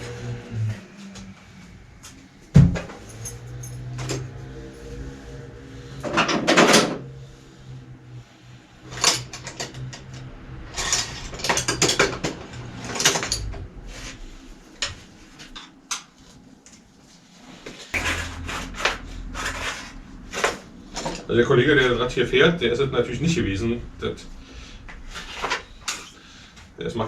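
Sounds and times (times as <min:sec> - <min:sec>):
low hum: 0:00.0 - 0:17.2, 0:18.0 - 0:27.0
tools and metal parts clanking: 0:02.6 - 0:04.6.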